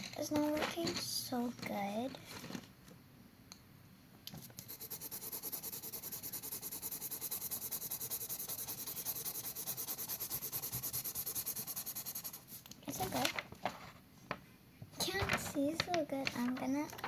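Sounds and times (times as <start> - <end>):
pencil shading on paper: 4.4 - 12.6.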